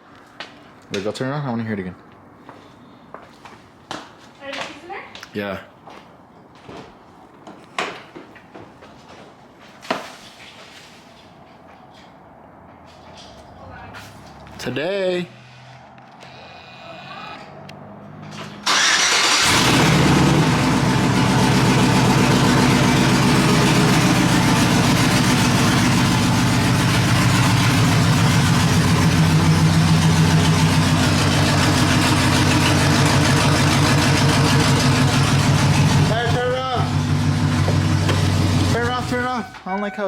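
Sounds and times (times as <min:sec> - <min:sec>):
pickup truck engine starting and idling: 0:18.6 - 0:39.4.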